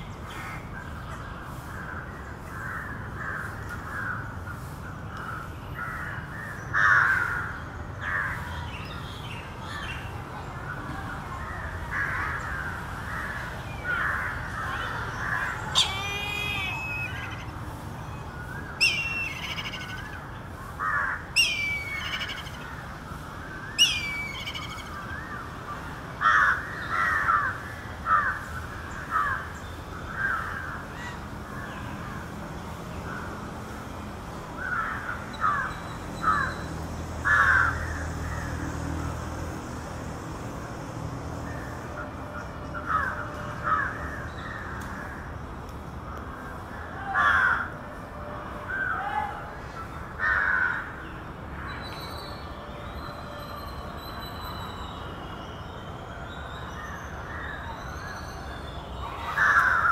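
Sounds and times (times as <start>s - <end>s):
crows cawing: 6.8s - 8.4s, 15.2s - 17.5s, 20.8s - 22.6s, 26.2s - 28.5s, 37.2s - 38.0s, 42.8s - 44.2s, 50.2s - 50.9s, 59.3s - 59.9s
kite whistled calls: 15.6s - 17.5s.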